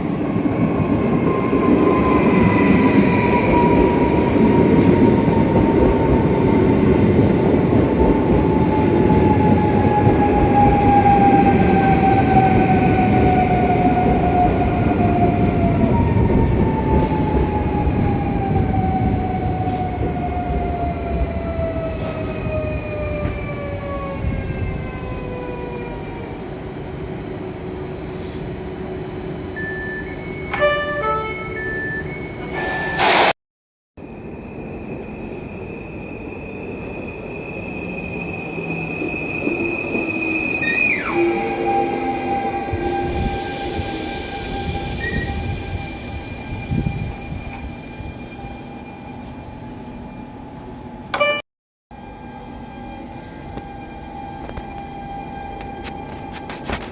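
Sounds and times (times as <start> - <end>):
train rolling noise: 0.0 - 33.3, 34.0 - 51.4, 52.0 - 56.9
loud hiss: 32.6 - 33.4.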